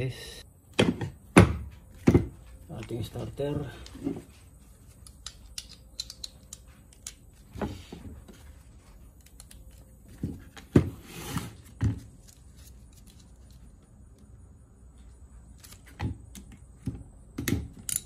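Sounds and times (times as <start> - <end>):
metal parts clinking: 4.9 - 7.2.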